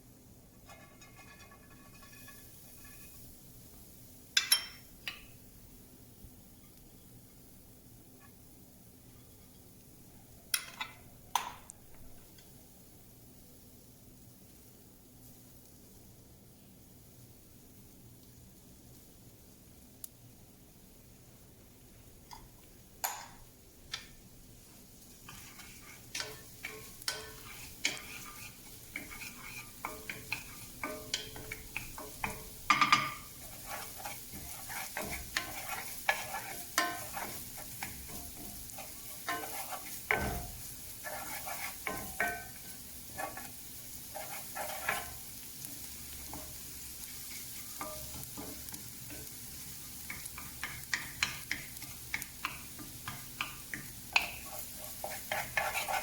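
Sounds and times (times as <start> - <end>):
greens sizzling in a pan: 0.0 - 56.0
utensil scraping against a pan: 0.6 - 3.3, 25.2 - 56.0.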